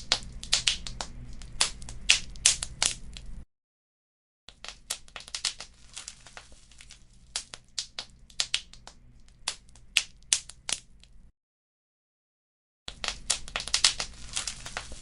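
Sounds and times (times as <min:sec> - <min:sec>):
wood fire crackling and popping: 0:00.0 - 0:03.4, 0:04.6 - 0:10.8, 0:12.9 - 0:15.0.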